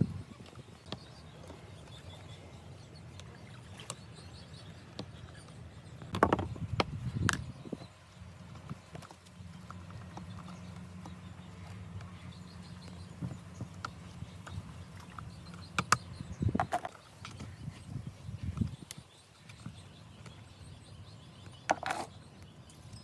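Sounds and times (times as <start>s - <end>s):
steady low hum: 0.0s - 23.0s
sharp knocks and clatters: 6.0s - 7.0s.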